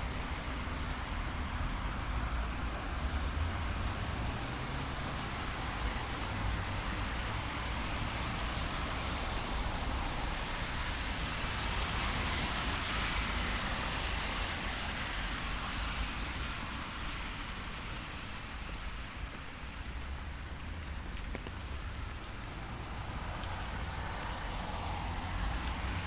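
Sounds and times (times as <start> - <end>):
rain on a street: 0.0 - 26.0
traffic hiss on wet asphalt: 0.0 - 26.0.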